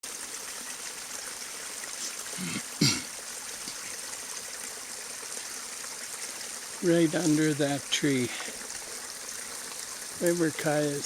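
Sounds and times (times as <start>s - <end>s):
spring water trickling: 0.0s - 11.0s.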